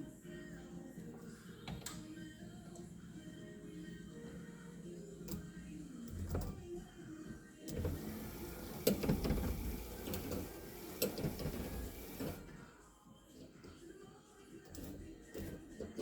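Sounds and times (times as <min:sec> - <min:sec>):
windscreen wiper motor running: 0:07.7 - 0:12.4
wiper motor clicks: 0:07.7 - 0:12.4.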